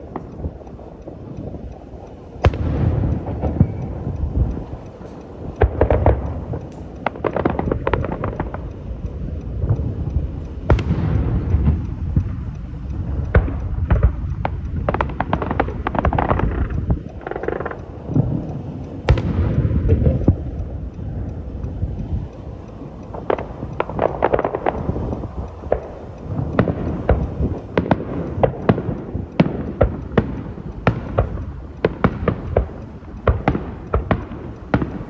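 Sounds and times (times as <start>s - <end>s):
fireworks crackling: 0.0s - 35.0s
firework shells booming: 2.3s - 8.9s, 10.6s - 20.7s, 23.1s - 35.0s
sharp firework bangs: 2.4s - 4.0s, 19.1s - 20.4s.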